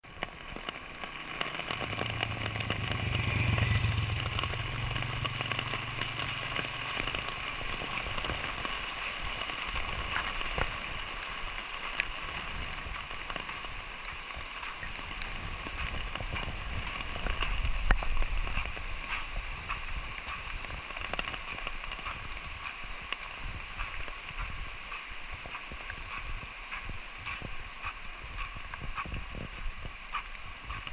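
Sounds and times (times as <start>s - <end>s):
light rain falling: 0.0s - 30.9s
low rumble: 1.6s - 8.6s.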